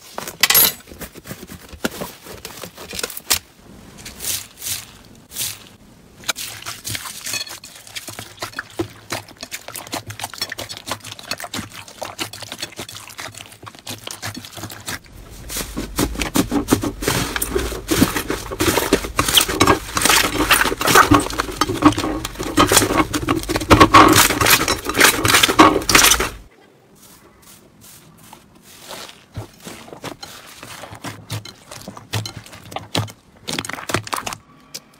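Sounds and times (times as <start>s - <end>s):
slime squelching by hand: 4.1s - 26.5s.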